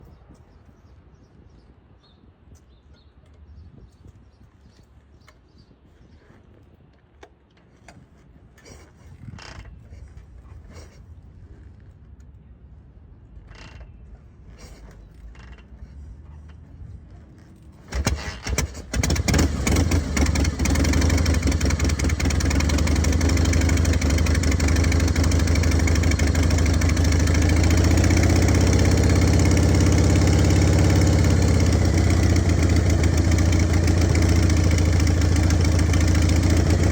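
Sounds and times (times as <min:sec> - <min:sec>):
motorcycle engine starting and running: 0:17.3 - 0:36.9.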